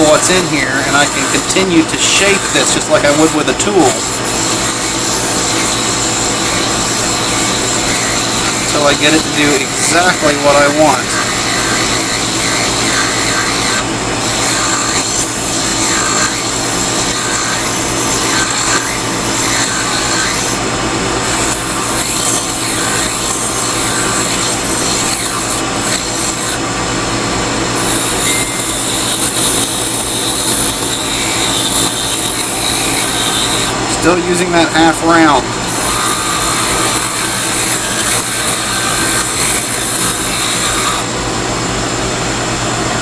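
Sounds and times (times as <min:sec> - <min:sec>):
file rasping on wood: 0:00.0 - 0:20.6, 0:21.2 - 0:26.6, 0:27.7 - 0:33.8, 0:35.6 - 0:41.1
lathe motor humming: 0:00.0 - 0:43.0.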